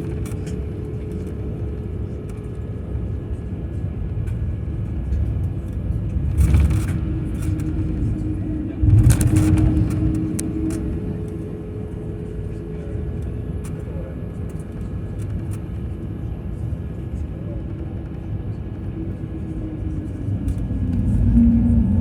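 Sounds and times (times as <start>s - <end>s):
airliner engine rumble: 0.0s - 22.0s
faint constant hum: 0.0s - 22.0s
air rushes: 6.4s - 11.9s, 19.0s - 22.0s.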